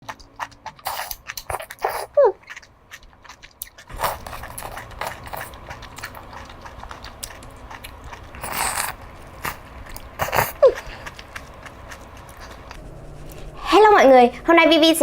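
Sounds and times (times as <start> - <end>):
chewing shellfish: 0.0 - 13.6
crunchy bursts: 3.0 - 13.6.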